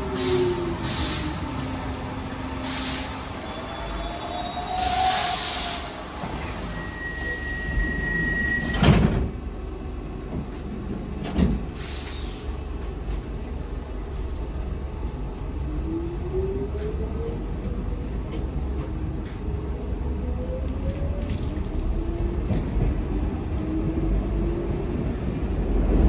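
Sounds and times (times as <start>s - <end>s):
air hiss bursts: 2.6s - 3.2s
train doors shutting thud: 7.9s - 9.4s, 10.3s - 12.3s.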